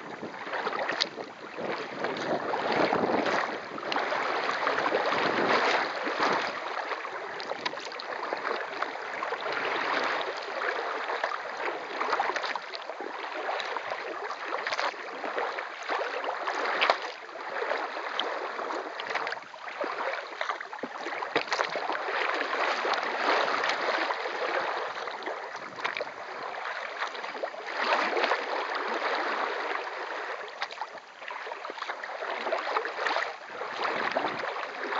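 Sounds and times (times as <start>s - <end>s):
water splashing around a kayak: 0.0s - 34.9s.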